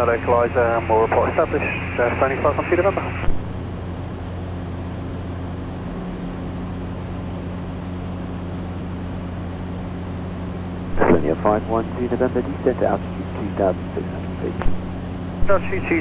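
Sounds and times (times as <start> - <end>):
aircraft engine and propeller hum: 0.0 - 16.0
air noise: 10.9 - 16.0.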